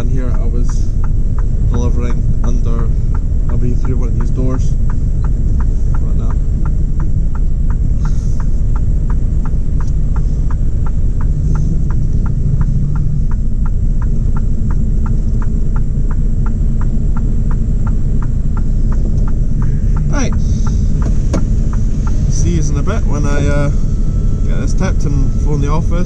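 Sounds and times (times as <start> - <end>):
regular ticking: 0.0 - 26.0
truck diesel engine rumbling: 0.0 - 26.0
man speaking: 1.6 - 4.8, 20.0 - 20.6, 22.2 - 26.0.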